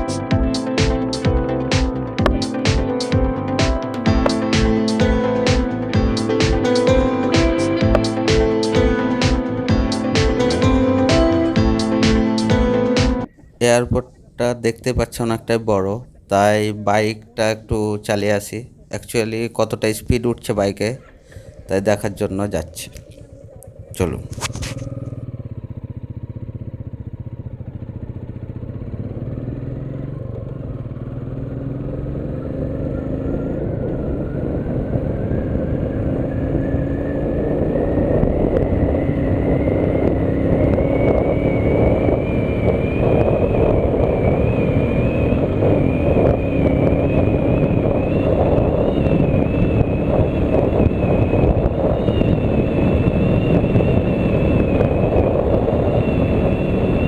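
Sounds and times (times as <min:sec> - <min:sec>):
motorcycle engine accelerating: 0:00.0 - 0:13.3, 0:21.0 - 0:57.0
wind rush on microphone: 0:33.5 - 0:57.0.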